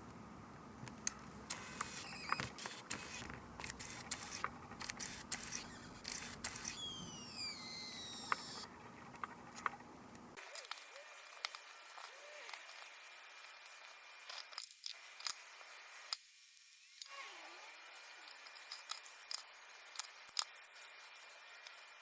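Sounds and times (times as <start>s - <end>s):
falling whine: 5.6s - 9.8s.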